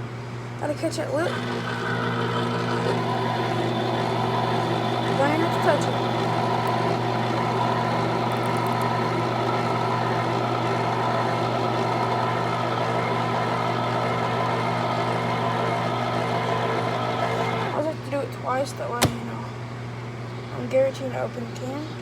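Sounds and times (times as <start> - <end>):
electric can opener motor humming: 0.9 - 17.9.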